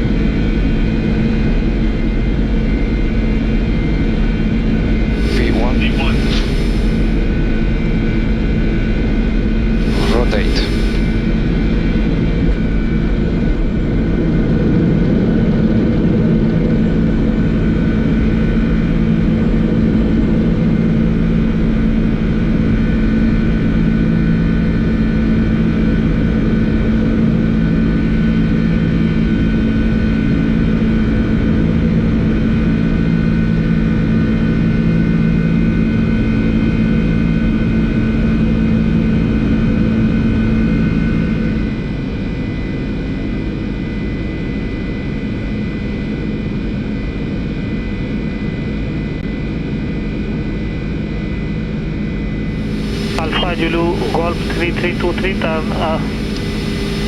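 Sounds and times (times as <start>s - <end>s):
airflow and jet engine rush: 5.0s - 7.5s, 9.6s - 12.7s, 52.5s - 57.0s
low steady hum: 5.1s - 7.4s, 9.8s - 11.7s, 52.6s - 57.0s.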